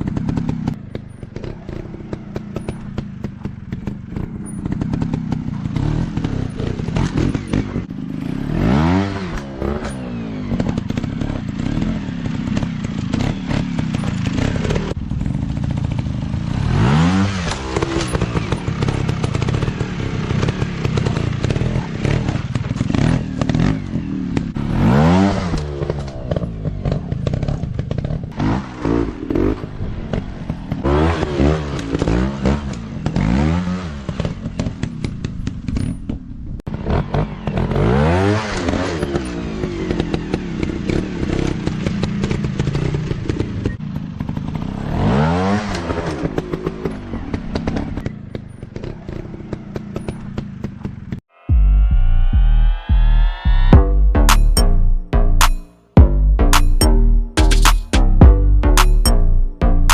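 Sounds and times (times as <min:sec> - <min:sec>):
dirt bike engines revving: 0:00.0 - 0:35.7.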